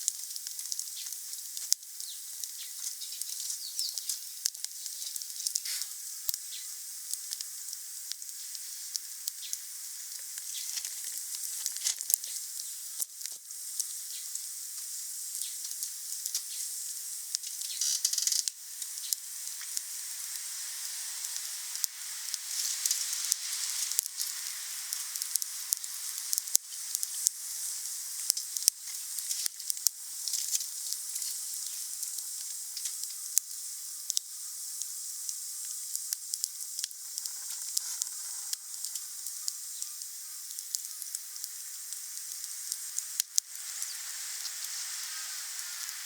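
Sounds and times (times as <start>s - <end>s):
wood fire crackling: 0.0s - 46.0s.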